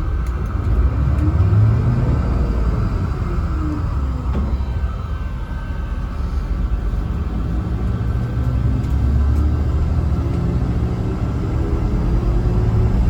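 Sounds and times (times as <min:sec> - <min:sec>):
bus diesel engine rumble: 0:00.0 - 0:13.0
road noise: 0:00.0 - 0:13.0.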